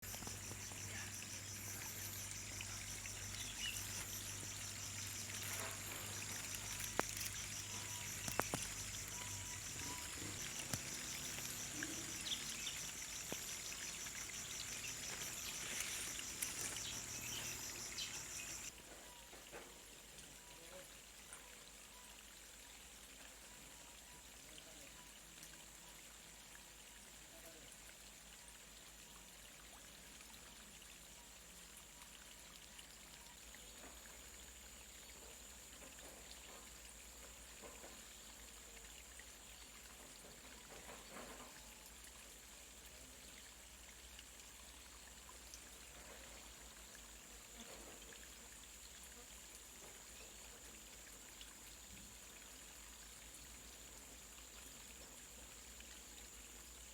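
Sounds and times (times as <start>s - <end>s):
thin high steady tone: 0.0s - 18.7s
faint steady hiss: 0.0s - 56.9s.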